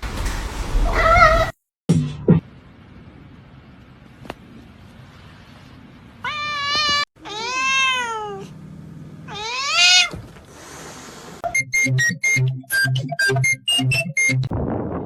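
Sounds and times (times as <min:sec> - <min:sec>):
cat meowing: 0:06.2 - 0:08.5, 0:09.3 - 0:10.2.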